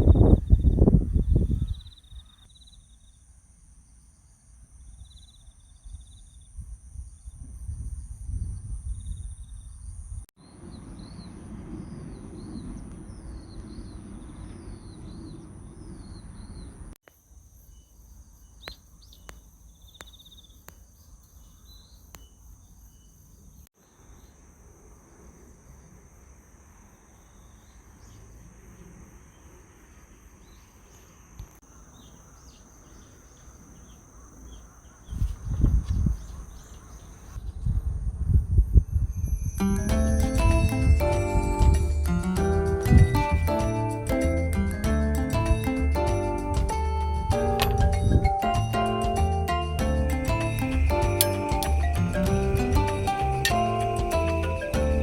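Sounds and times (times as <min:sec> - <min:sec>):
wind rumbling on microphone: 0:00.0 - 0:02.4, 0:05.6 - 0:17.0, 0:34.9 - 0:55.0
birds chirping: 0:00.0 - 0:03.2, 0:09.0 - 0:17.0, 0:31.6 - 0:37.4, 0:42.4 - 0:55.0.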